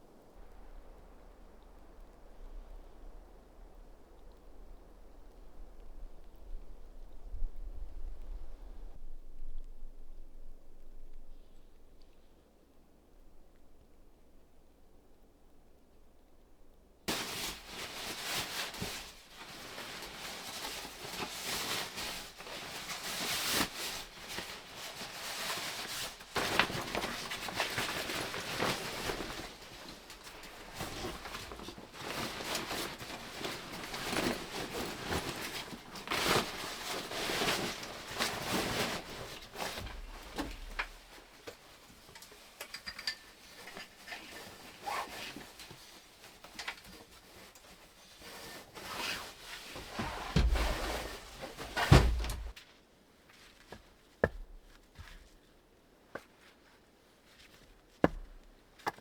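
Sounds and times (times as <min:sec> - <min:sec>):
close rustling and handling: 0:17.1 - 0:59.0
small clicks and knocks: 0:40.4 - 0:44.0.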